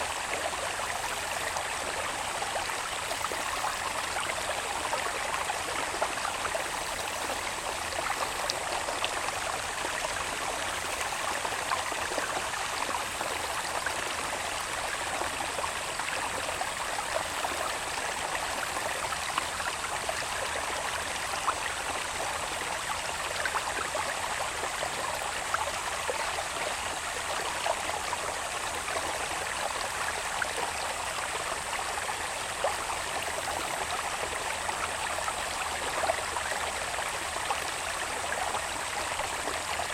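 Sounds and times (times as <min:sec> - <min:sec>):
water babbling in a channel: 0:00.0 - 0:39.9.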